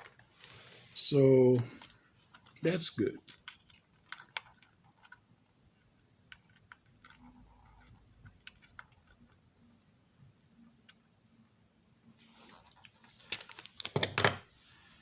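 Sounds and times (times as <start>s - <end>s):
small parts clicking and tapping: 1.6s - 5.2s, 5.8s - 9.4s.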